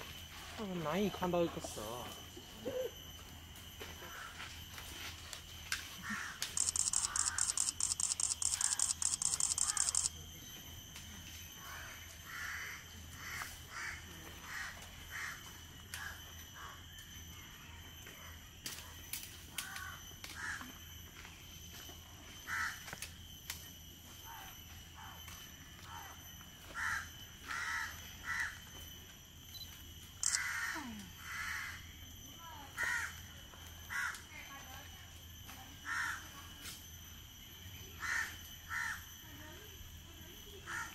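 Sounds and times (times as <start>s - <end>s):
high insect drone: 0.0s - 40.9s
fast high ticking: 6.6s - 10.1s.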